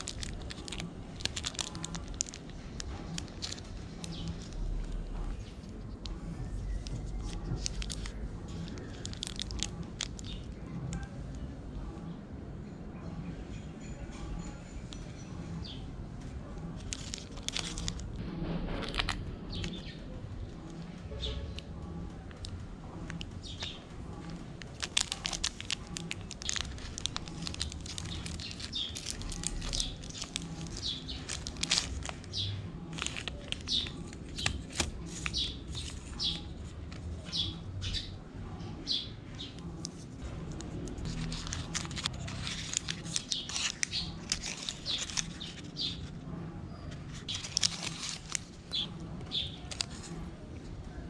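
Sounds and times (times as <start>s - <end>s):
wrapper crinkling and tearing: 0.0s - 6.1s, 6.7s - 10.6s, 16.8s - 18.2s, 22.3s - 37.4s, 39.8s - 46.1s, 47.1s - 50.3s
birds chirping: 22.9s - 39.8s, 41.6s - 46.1s, 48.6s - 50.2s.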